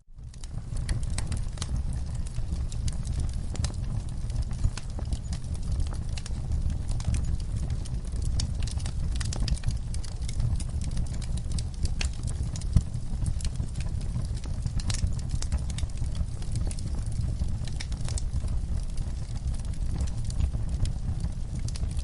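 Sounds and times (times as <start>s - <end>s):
low rumble of flames: 0.1s - 22.0s
wood fire crackling and popping: 0.1s - 22.0s.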